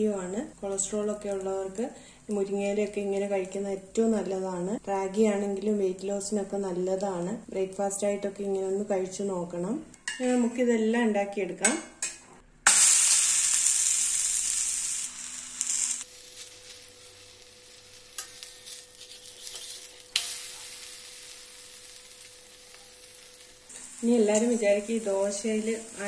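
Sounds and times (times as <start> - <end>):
patty sizzling in oil: 12.7 - 26.0.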